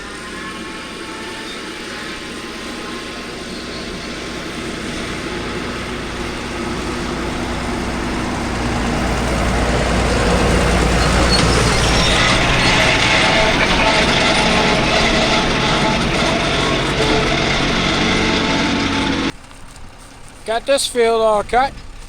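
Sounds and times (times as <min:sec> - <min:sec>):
tractor engine and mower drone: 0:00.0 - 0:22.0.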